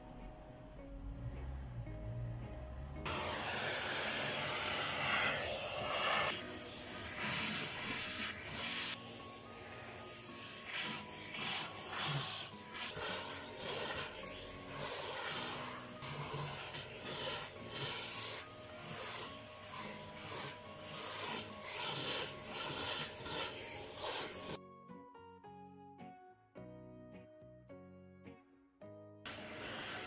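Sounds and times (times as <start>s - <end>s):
faint music: 0.0s - 30.0s
rubbing strokes: 3.1s - 24.6s.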